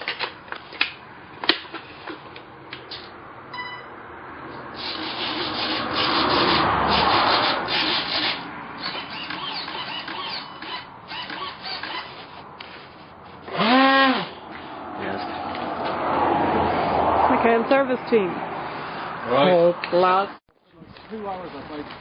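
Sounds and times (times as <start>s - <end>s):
short electronic beep: 3.5s - 4.0s.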